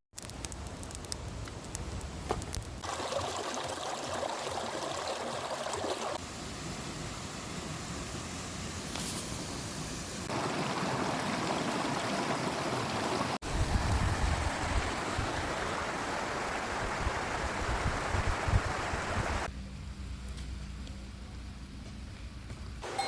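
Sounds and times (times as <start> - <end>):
rushing water: 2.8 - 19.5.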